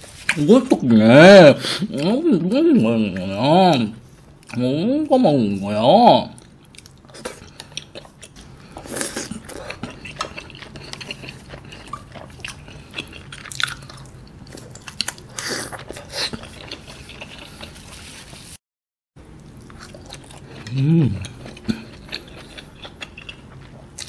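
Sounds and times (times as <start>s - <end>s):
chewing with wet mouth smacks: 6.4s - 17.9s, 19.3s - 24.0s.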